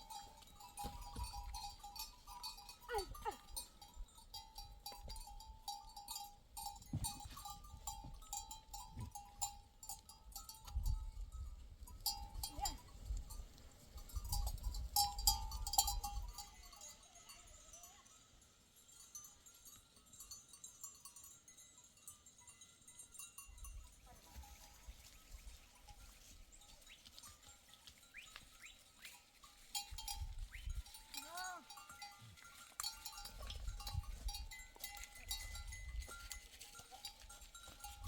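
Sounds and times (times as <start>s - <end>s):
animal bells clinking: 0.0s - 38.0s.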